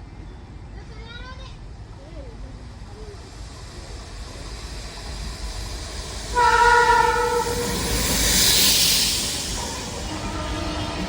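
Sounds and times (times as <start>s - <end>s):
train passing close by: 0.0s - 11.0s
locomotive air horn: 6.4s - 7.8s.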